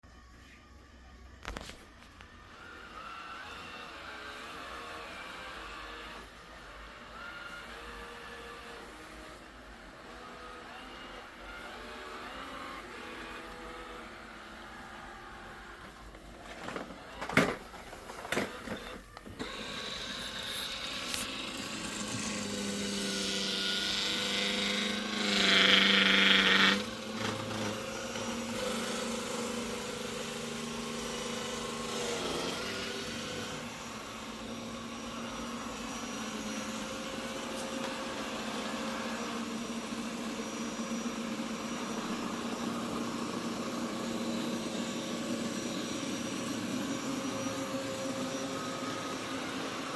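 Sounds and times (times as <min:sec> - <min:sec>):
robot vacuum motor hum: 0:01.4 - 0:49.9.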